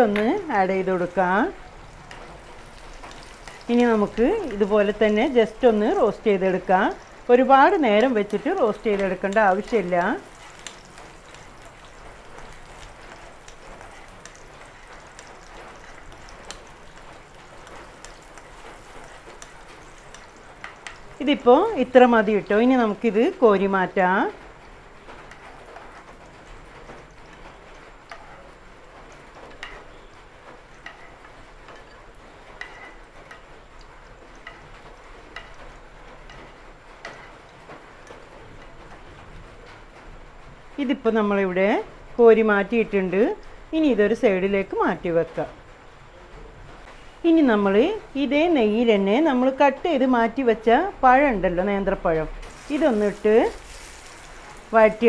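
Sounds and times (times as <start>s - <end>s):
nuts sizzling in hot fat: 0.0s - 38.8s, 52.4s - 55.0s.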